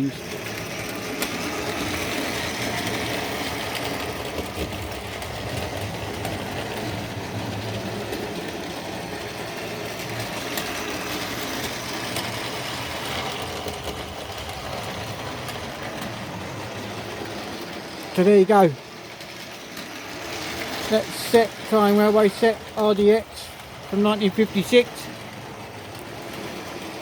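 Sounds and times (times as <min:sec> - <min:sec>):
model train motor whir: 0:00.0 - 0:27.0
wheels clicking over rails: 0:00.0 - 0:27.0.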